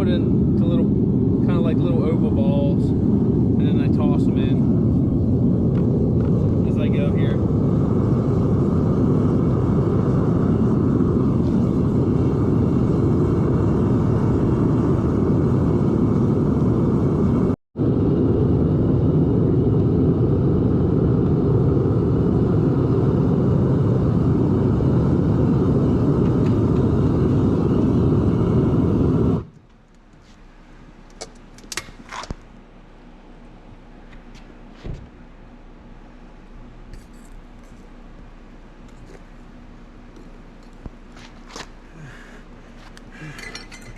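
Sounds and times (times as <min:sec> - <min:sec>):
propane burner rushing: 0:00.0 - 0:29.6, 0:40.1 - 0:43.9
light metal clinks: 0:43.2 - 0:43.9.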